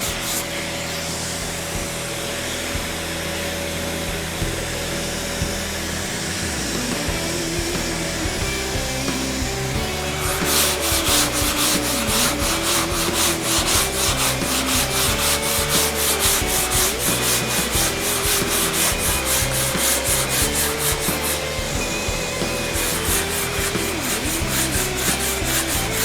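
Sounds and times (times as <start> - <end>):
sanding block on body filler: 0.0 - 1.1, 7.8 - 26.0.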